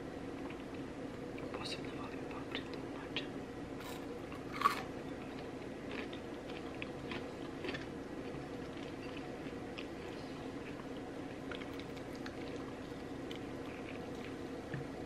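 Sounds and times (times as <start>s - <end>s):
low background hum: 0.0s - 15.0s
person chewing: 3.8s - 14.4s.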